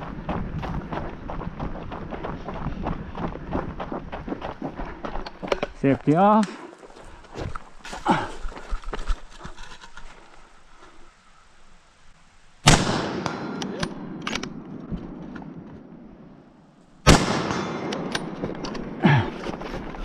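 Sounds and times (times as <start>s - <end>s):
gunshots with echo: 12.6s - 16.2s, 17.1s - 19.0s.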